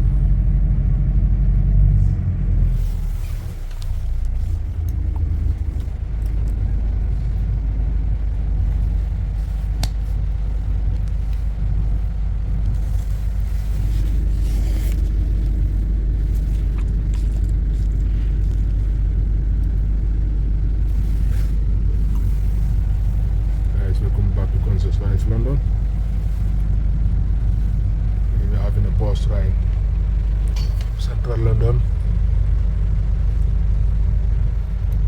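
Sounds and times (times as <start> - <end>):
low vehicle rumble: 0.0 - 35.0.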